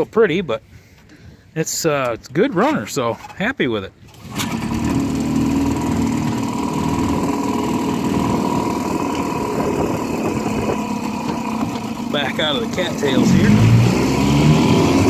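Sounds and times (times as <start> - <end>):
outboard motor running: 4.0 - 15.0.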